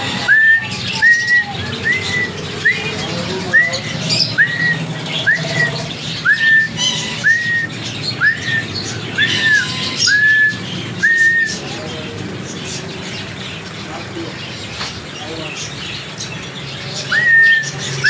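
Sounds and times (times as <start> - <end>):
birds chirping: 0.0 - 18.0
bird repeating rising whistled call: 0.2 - 11.6.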